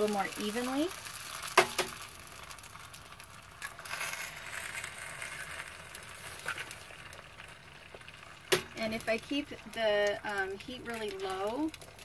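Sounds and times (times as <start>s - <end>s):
eggs sizzling in a skillet: 0.0s - 12.0s.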